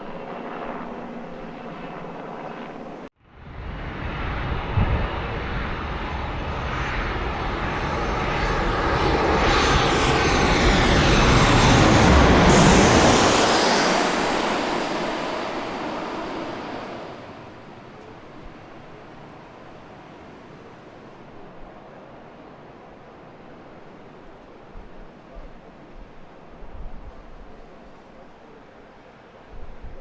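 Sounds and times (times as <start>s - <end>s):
high engine whine: 0.0s - 21.2s
jet airliner passing: 0.0s - 24.4s.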